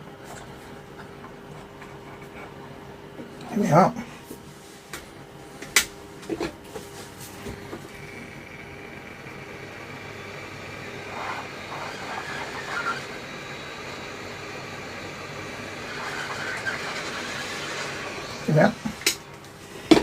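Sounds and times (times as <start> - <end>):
hot air blower hissing: 6.7 - 20.0.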